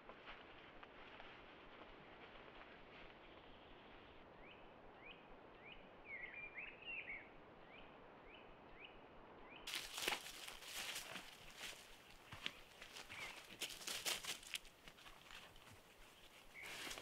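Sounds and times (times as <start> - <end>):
footsteps in dry leaves: 9.7 - 17.0
small bird chirping: 12.2 - 13.6.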